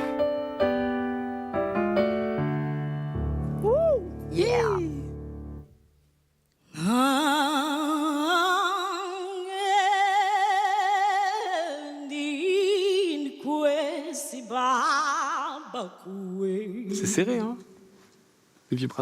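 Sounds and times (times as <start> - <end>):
person singing with vibrato: 6.7 - 17.6.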